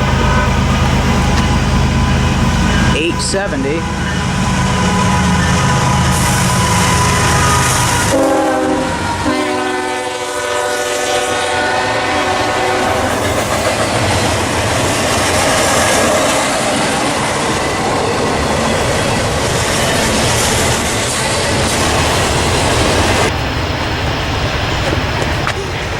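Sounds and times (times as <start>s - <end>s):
locomotive air horn: 0.0s - 13.3s
diesel locomotive engine rumbling: 0.0s - 25.9s
rail cars clattering: 0.0s - 25.9s.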